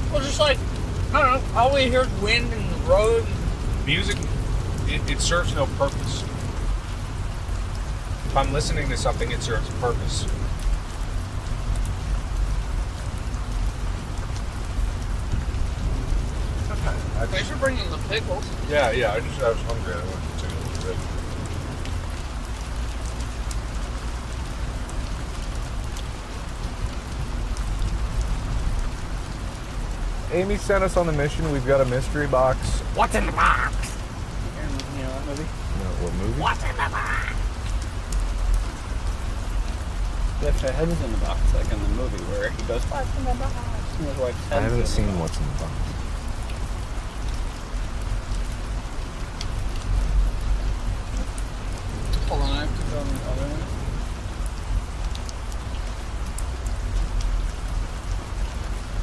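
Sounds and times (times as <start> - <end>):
car driving on road: 0.0 - 59.0
sharp raindrop ticks: 0.0 - 59.0
steady rain falling: 0.0 - 59.0.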